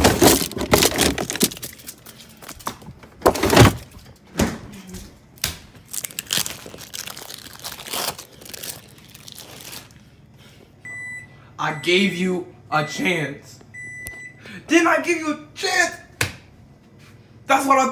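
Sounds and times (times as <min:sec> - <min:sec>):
crinkling handling noise: 0:00.0 - 0:04.3, 0:05.1 - 0:10.3.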